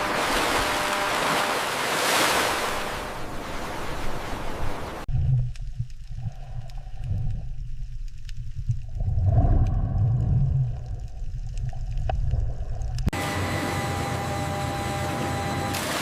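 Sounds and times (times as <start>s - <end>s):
ocean waves washing: 0.0s - 5.1s.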